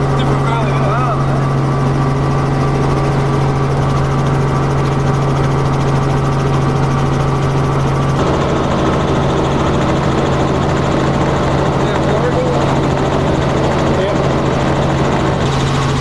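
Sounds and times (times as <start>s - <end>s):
aircraft engine and propeller drone: 0.0s - 16.0s.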